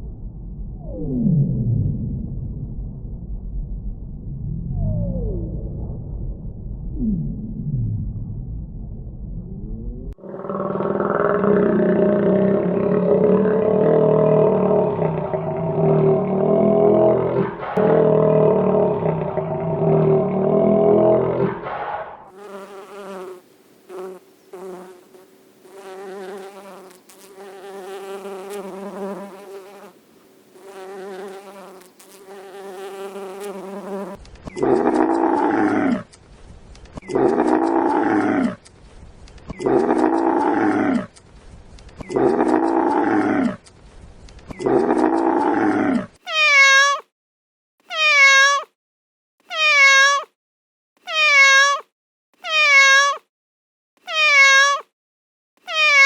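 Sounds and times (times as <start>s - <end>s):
loud drawn-out animal calls: 10.2s - 22.3s, 52.4s - 53.2s, 54.0s - 54.9s, 55.6s - 56.0s
pitched buzzing animal calls: 22.4s - 29.9s, 30.6s - 36.0s, 39.5s - 41.2s, 42.0s - 43.6s, 44.5s - 47.0s, 49.4s - 50.3s, 51.0s - 53.2s, 54.0s - 54.9s, 55.6s - 56.0s
cat meowing: 46.2s - 47.1s, 47.8s - 48.7s, 49.4s - 50.3s, 51.0s - 53.3s, 54.0s - 54.9s, 55.6s - 56.0s.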